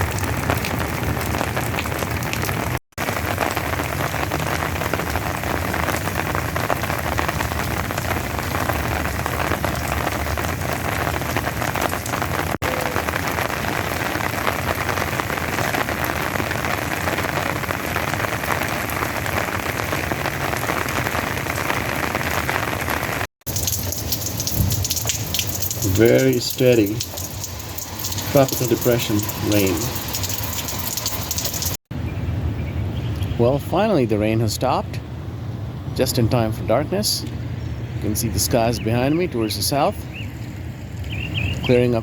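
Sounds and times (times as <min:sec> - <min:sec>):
steady rain falling: 0:00.0 - 0:31.8.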